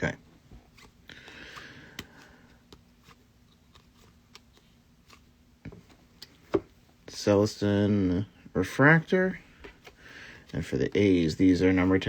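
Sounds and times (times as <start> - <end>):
cards sliding rustle: 0.4 - 6.7.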